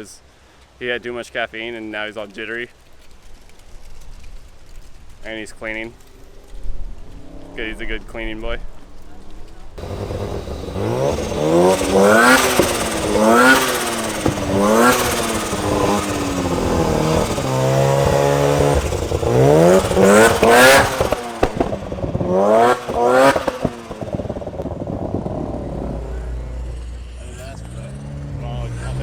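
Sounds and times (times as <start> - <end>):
engine revving: 6.0 - 29.0
sharp exhaust pops: 8.7 - 29.0.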